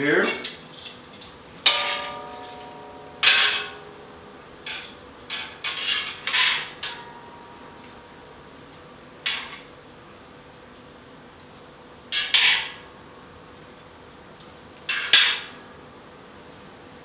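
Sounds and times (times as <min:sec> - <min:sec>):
metal spatula clanging on wok: 0:01.7 - 0:07.6.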